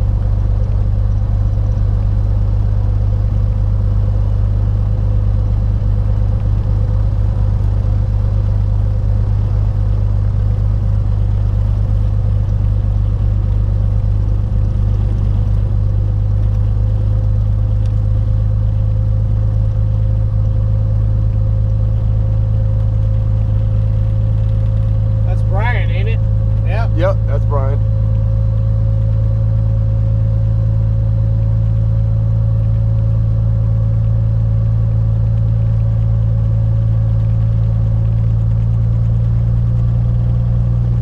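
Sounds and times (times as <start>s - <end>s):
propeller plane engine drone: 0.0s - 41.0s.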